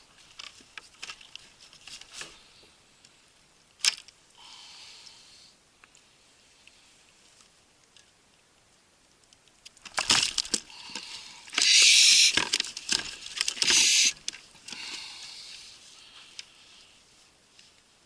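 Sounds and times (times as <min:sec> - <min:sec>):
rushing hissy noise: 0:11.1 - 0:12.4, 0:13.6 - 0:14.2.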